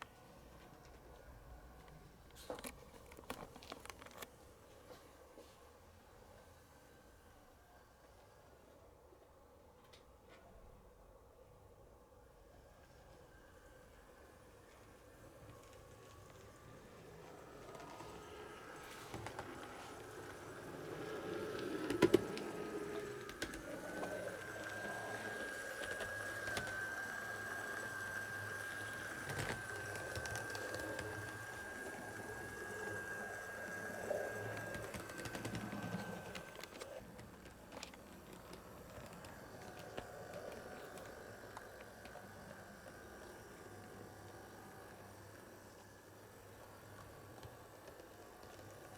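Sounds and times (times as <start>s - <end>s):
model train motor whine: 12.6s - 48.9s
wheels clicking on rails: 14.7s - 48.9s.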